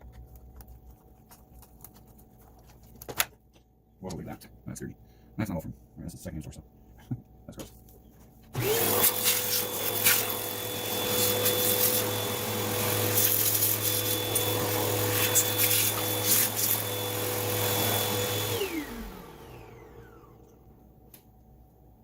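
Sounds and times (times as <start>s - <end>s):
vacuum cleaner whining: 8.5s - 20.8s.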